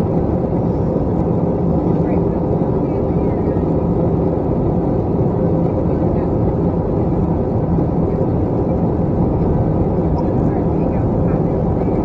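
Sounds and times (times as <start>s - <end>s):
jet engine and airflow rumble: 0.0s - 12.0s.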